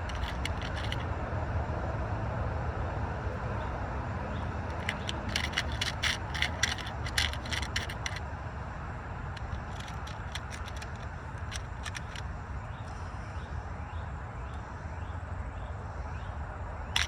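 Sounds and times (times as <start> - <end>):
crimp connectors clicking: 0.0 - 1.0, 4.7 - 8.2, 9.4 - 12.3.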